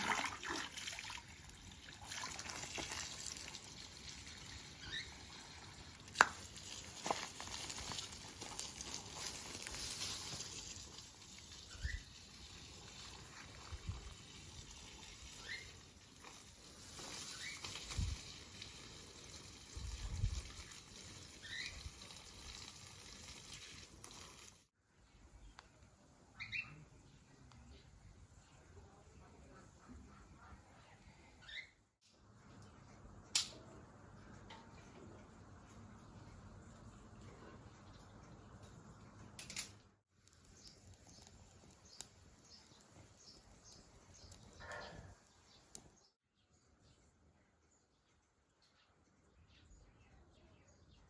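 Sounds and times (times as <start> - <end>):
water trickling: 0.0 - 16.2.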